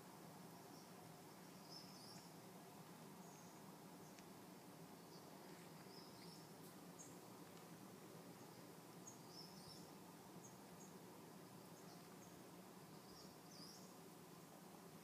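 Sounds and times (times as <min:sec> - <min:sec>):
faint high bird chirps: 0:00.6 - 0:02.4, 0:03.2 - 0:04.2, 0:05.0 - 0:07.2, 0:08.4 - 0:11.0, 0:11.7 - 0:14.0.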